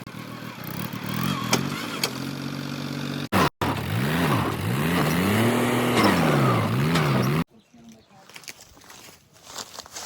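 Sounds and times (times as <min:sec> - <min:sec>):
diesel engine running: 0:00.0 - 0:07.5
engine revving: 0:00.0 - 0:07.5.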